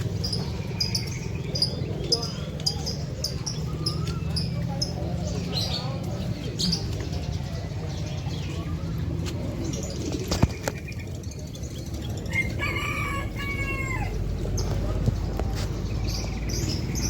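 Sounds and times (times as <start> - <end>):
background hubbub: 0.0 - 17.0
rooster crowing: 12.3 - 14.2.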